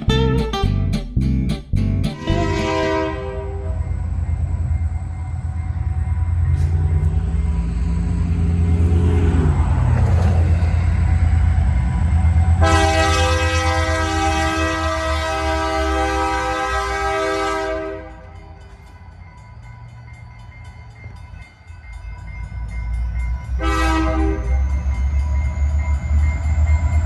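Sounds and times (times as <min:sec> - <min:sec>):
train locomotive rumbling: 0:00.0 - 0:27.0
locomotive air horn chord: 0:02.2 - 0:04.0, 0:12.6 - 0:18.4, 0:23.6 - 0:24.6.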